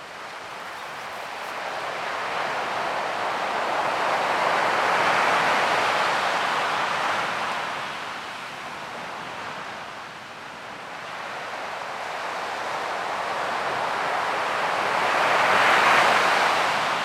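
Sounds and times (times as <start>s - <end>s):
ocean waves washing: 0.1s - 8.4s.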